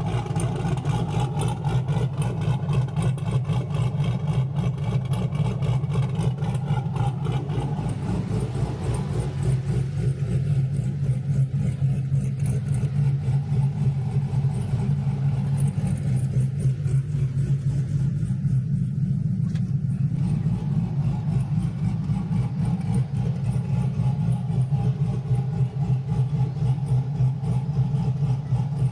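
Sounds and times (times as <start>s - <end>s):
vee eight engine idling: 0.0s - 28.9s.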